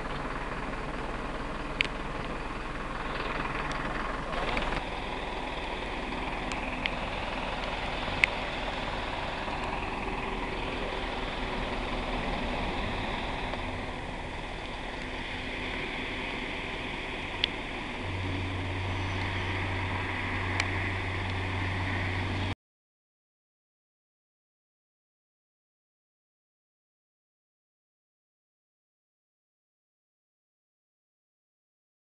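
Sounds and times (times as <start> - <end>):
steady low hum: 0.0 - 22.6
vehicle engine running: 0.0 - 22.6.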